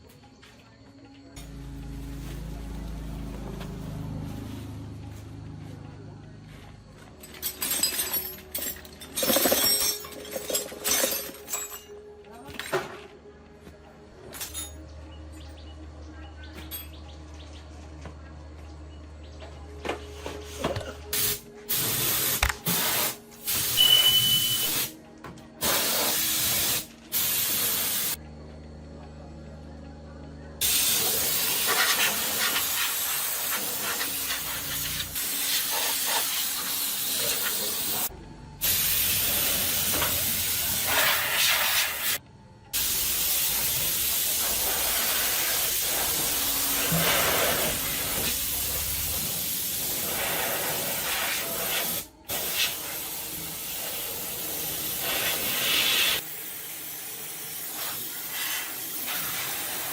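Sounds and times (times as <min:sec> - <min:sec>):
high-pressure water spray hissing: 0:21.1 - 0:24.9, 0:25.6 - 0:28.2, 0:30.6 - 0:42.2, 0:42.8 - 0:59.9.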